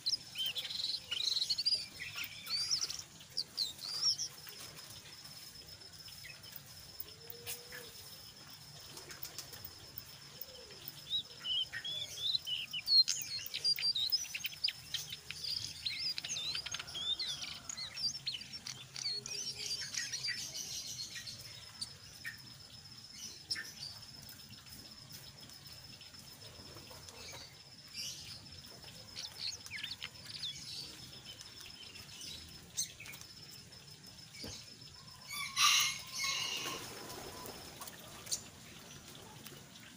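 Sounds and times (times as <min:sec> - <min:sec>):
bird chirping and trilling: 0:00.0 - 0:05.0, 0:10.2 - 0:22.5, 0:35.0 - 0:38.5.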